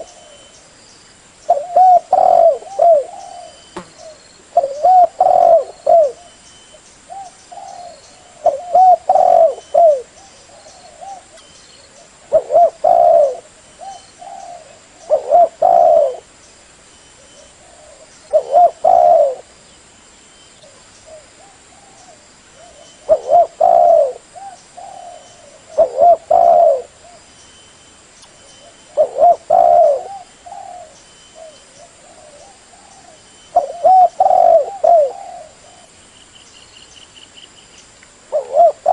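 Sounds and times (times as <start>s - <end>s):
dove cooing: 1.5s - 6.4s, 7.1s - 16.3s, 17.2s - 19.5s, 20.6s - 27.2s, 28.6s - 35.9s, 38.3s - 38.9s.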